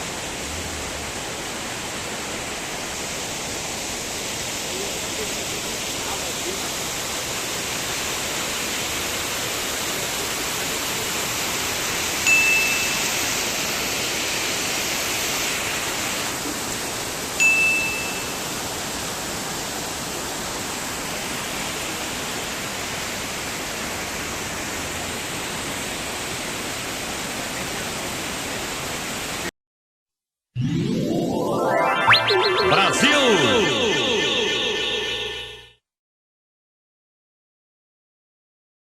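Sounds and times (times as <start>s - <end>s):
rushing water: 0.0s - 29.5s
bright chime pings: 12.3s - 13.3s, 17.4s - 18.5s.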